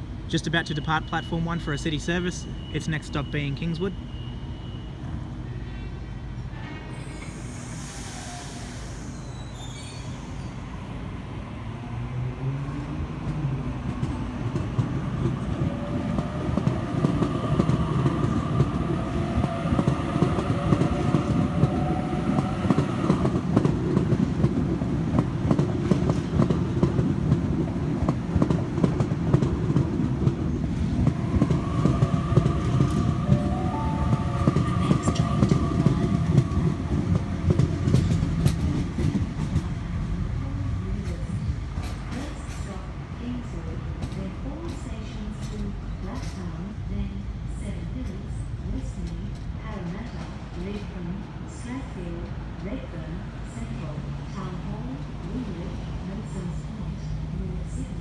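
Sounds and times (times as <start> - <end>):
train wheels rattling on track: 12.5 - 58.0.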